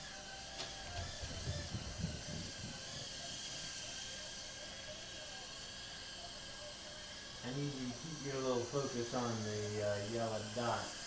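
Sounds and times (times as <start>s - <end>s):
drone motors whining: 0.0s - 4.8s.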